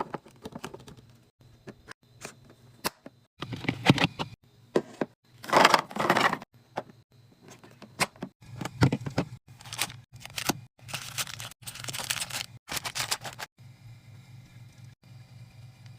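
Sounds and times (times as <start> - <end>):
plastic packaging crinkling and tearing: 9.6 - 13.5.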